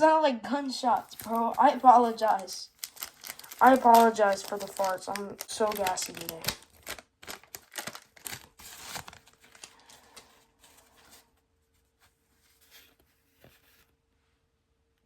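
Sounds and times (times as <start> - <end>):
wrapper tearing and crinkling: 1.0 - 11.2.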